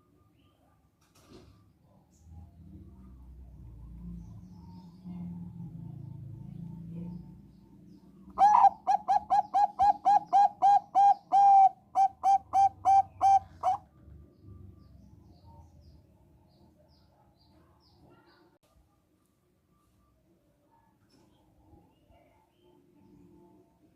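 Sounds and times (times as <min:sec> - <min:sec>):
dove cooing: 0:08.4 - 0:13.8.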